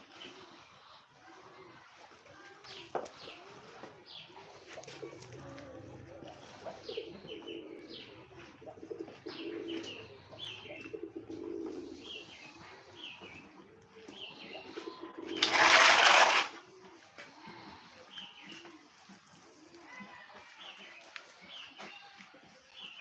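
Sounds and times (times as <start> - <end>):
low bird calls: 4.1 - 16.5.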